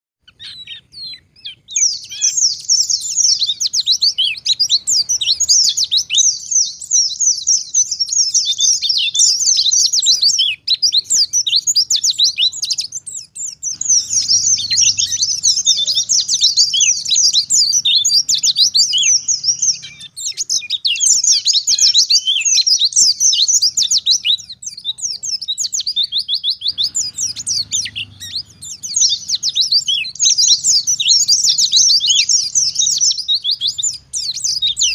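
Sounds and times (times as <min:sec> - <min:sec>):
bird twittering song: 0:00.2 - 0:34.9.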